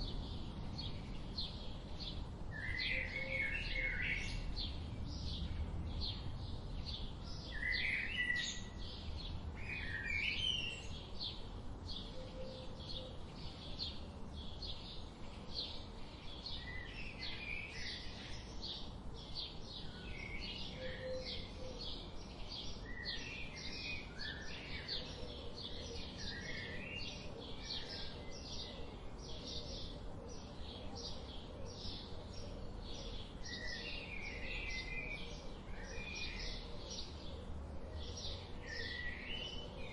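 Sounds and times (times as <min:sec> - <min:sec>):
birds singing: 0:00.0 - 0:39.9.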